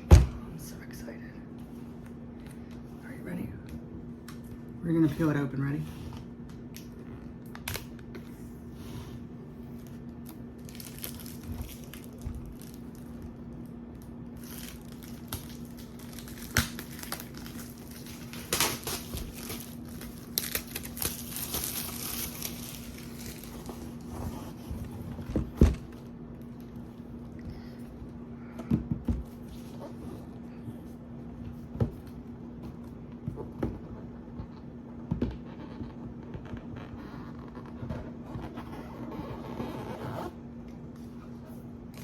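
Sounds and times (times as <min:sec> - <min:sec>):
packaging crinkling and tearing: 0:09.7 - 0:24.1.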